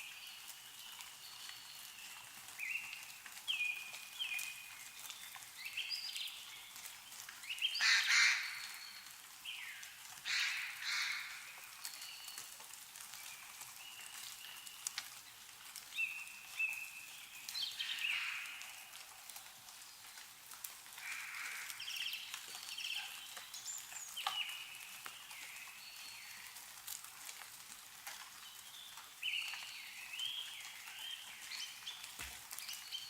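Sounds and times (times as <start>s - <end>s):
faint dripping ticks: 0.1s - 7.8s, 8.4s - 33.0s
harsh raspy bird calls: 7.8s - 8.6s, 10.3s - 11.5s.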